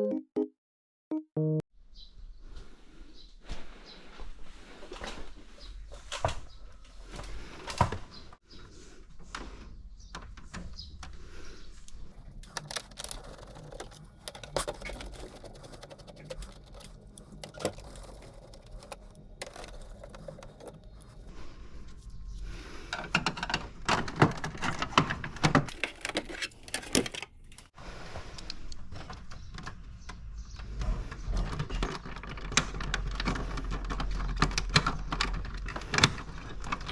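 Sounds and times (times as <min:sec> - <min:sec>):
plastic and metal parts clicking: 0:12.2 - 0:21.3, 0:22.9 - 0:27.7, 0:28.4 - 0:36.9.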